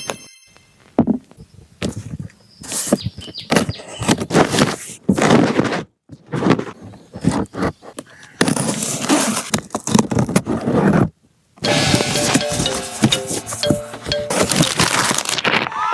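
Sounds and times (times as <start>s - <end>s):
toys and packaging handled: 14.2s - 15.9s.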